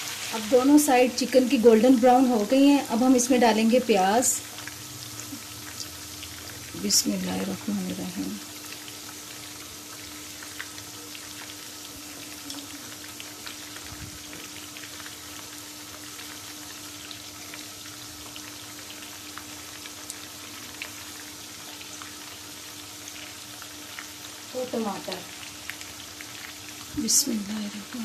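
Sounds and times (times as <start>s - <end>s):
oil sizzling with chicken frying: 0.0s - 28.0s.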